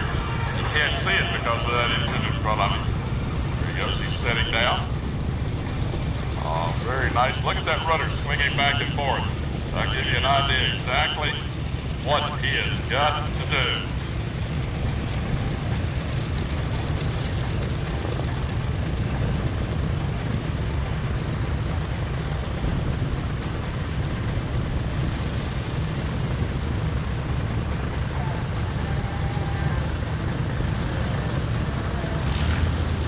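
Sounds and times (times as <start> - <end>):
biplane engine and propeller: 0.0 - 33.0.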